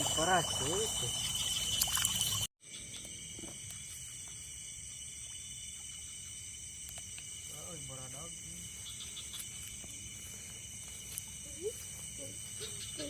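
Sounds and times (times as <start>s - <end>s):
crickets and night insects trilling: 0.0s - 13.0s.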